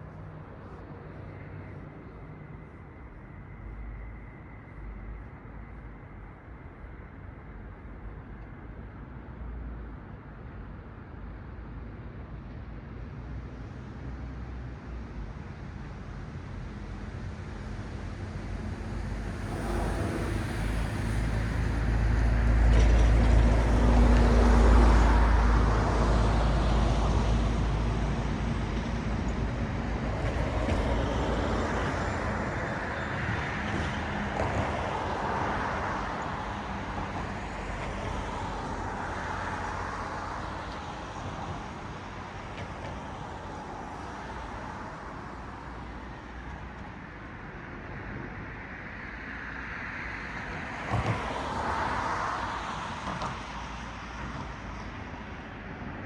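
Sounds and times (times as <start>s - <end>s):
vehicles passing: 18.9s - 26.9s
deep engine rumble: 19.1s - 25.6s.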